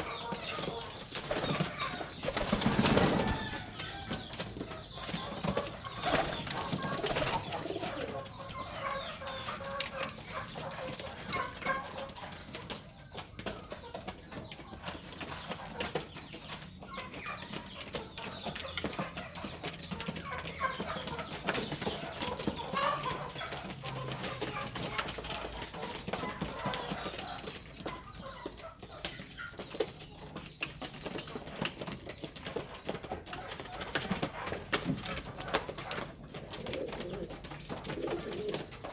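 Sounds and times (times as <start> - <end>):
birds clicking and tapping: 0.0 - 38.9
pigeons cooing: 0.0 - 38.9.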